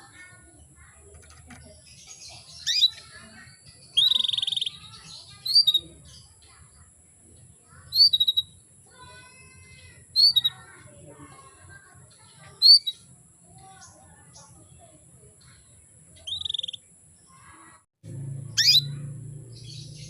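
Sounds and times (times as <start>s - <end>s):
canary buzzy trill: 0.0s - 6.9s, 7.6s - 20.0s
canary call notes: 16.2s - 16.8s, 18.5s - 20.0s.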